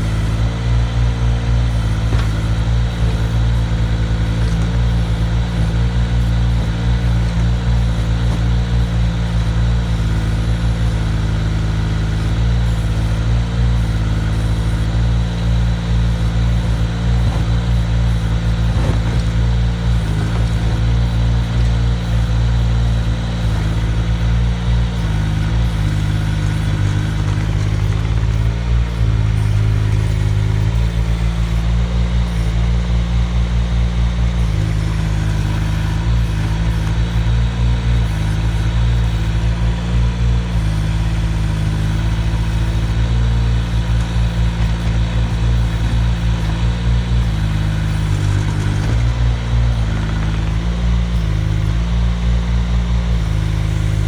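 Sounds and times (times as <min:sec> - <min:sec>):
excavator engine running: 0:00.0 - 0:54.0.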